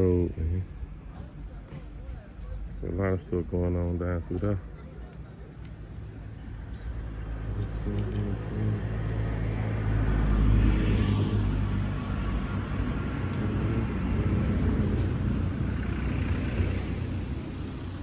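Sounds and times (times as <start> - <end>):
vehicle engine running: 5.6 - 18.0.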